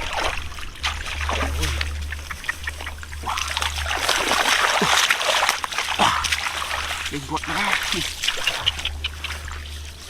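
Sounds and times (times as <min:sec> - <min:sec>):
muddy water splashing and sloshing: 0:00.0 - 0:10.0
steady low hum: 0:00.0 - 0:10.0.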